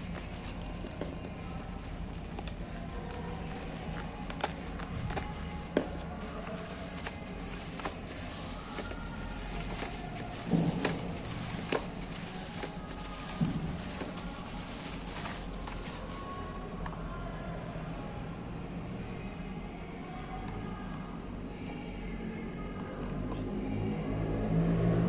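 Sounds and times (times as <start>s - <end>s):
clicks taps and rustles of packaging: 0.0s - 17.0s.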